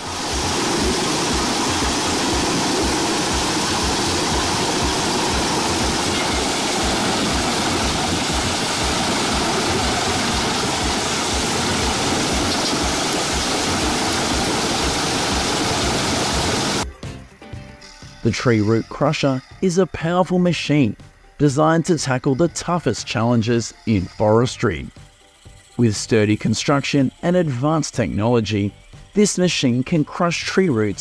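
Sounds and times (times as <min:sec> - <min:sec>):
wood chipper running: 0:00.0 - 0:16.8.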